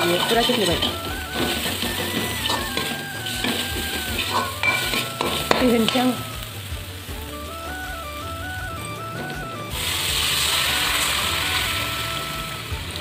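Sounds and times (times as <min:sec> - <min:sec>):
ladle scraping and knocking pan: 0:00.0 - 0:06.0
onions sizzling in hot oil: 0:00.0 - 0:13.0.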